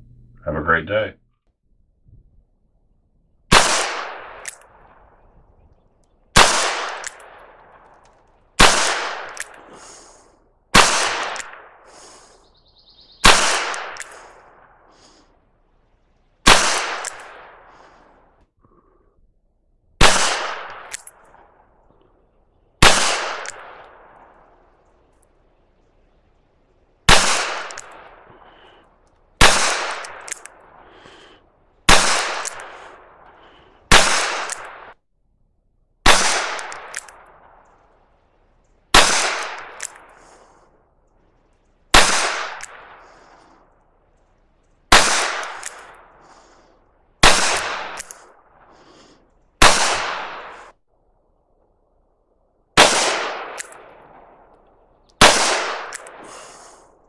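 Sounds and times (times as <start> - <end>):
revolver gunshots with echo: 3.5 - 5.6, 6.3 - 15.4, 16.4 - 18.3, 20.0 - 35.0, 36.0 - 38.3, 38.9 - 40.7, 41.9 - 43.8, 44.9 - 46.6, 47.2 - 50.8, 52.8 - 57.0.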